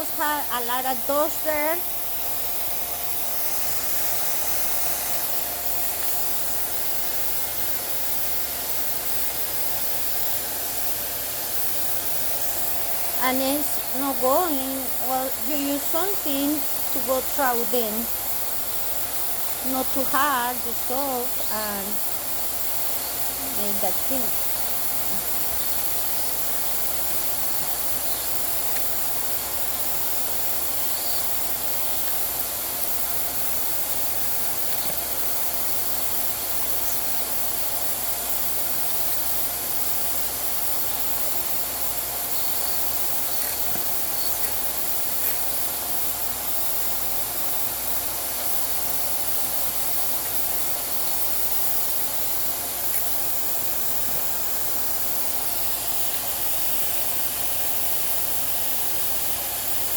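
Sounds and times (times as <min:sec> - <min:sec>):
vacuum cleaner running: 0:00.0 - 0:18.5.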